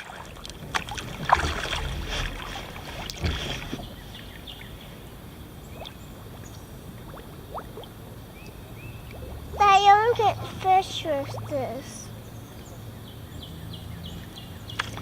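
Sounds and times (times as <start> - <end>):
paddle strokes splashing in water: 0.0 - 4.6.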